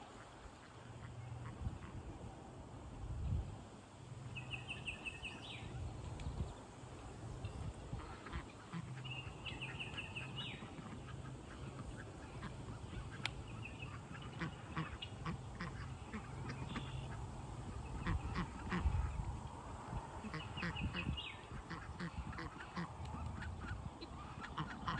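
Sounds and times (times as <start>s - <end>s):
ducks or geese calling: 7.5s - 24.9s.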